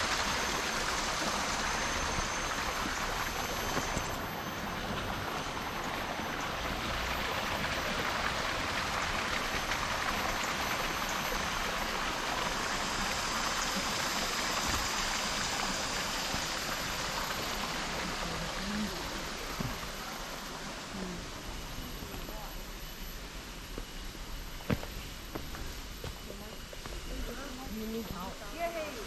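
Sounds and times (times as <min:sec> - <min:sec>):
stream water rushing: 0:00.0 - 0:21.6.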